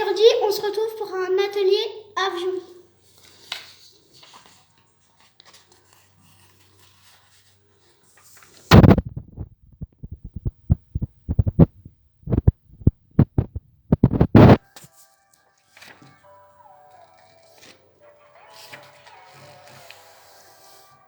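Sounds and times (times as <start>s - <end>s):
low thumps: 8.7s - 14.6s.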